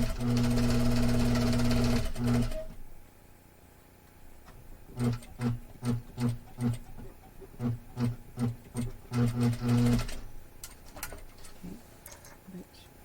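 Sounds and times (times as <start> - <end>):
sewing machine stitching: 0.0 - 2.7, 5.0 - 7.0, 7.6 - 10.3.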